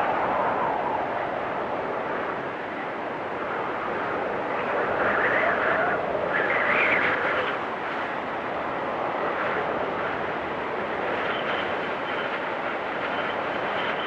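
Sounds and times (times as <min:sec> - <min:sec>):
storm wind blowing: 0:00.0 - 0:14.0.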